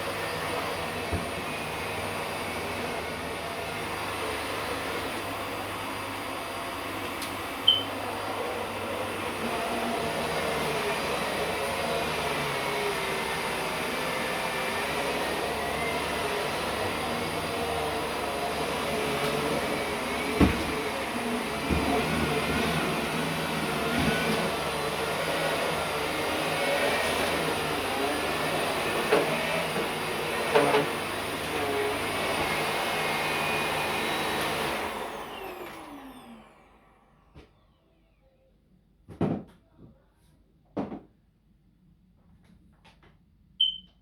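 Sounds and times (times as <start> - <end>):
vacuum cleaner running: 0.0 - 38.2
vacuum motor winding down: 8.6 - 37.7.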